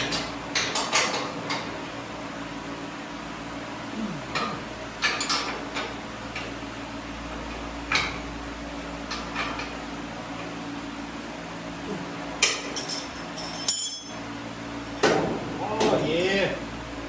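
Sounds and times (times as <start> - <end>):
metal tools clinking: 12.7 - 14.2.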